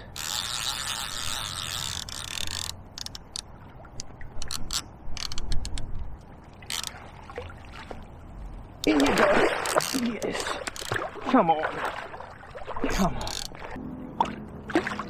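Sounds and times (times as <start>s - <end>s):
fishing reel ratchet clicking: 0.0s - 3.5s, 4.4s - 5.9s, 6.7s - 6.9s, 8.8s - 11.0s, 12.9s - 13.6s.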